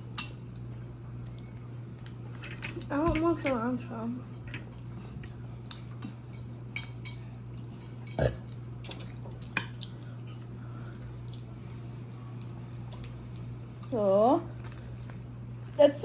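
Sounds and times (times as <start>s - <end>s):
steady low hum: 0.0s - 16.0s
utensils clinking on dishes: 2.3s - 3.7s.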